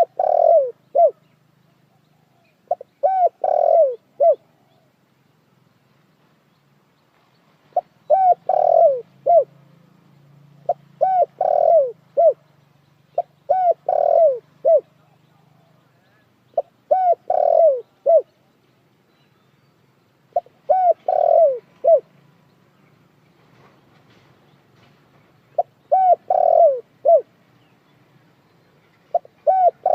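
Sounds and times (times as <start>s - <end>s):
dove cooing: 0.0s - 1.3s, 1.9s - 4.9s, 7.8s - 9.5s, 10.6s - 12.4s, 13.2s - 18.4s, 20.3s - 22.1s, 25.5s - 27.3s, 29.1s - 29.9s.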